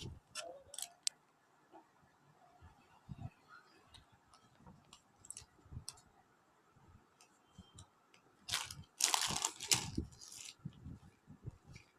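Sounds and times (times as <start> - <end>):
wrapping crinkling: 8.5 - 10.6.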